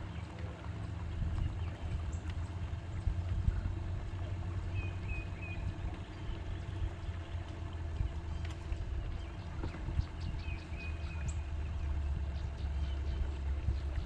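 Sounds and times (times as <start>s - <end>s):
boat motor humming: 0.0s - 14.0s.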